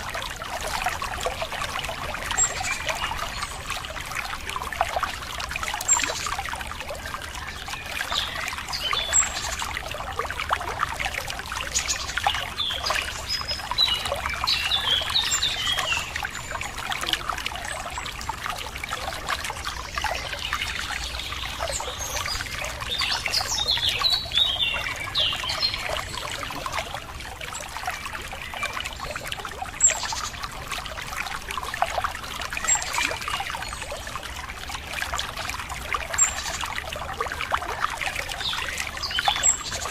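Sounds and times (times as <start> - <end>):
water trickling and splashing: 0.0 - 39.9
small birds chirping: 19.9 - 27.0.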